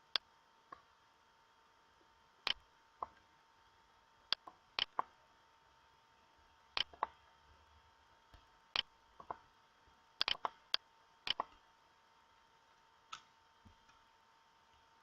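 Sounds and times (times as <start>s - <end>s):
short sharp clicks: 10.2s - 10.5s.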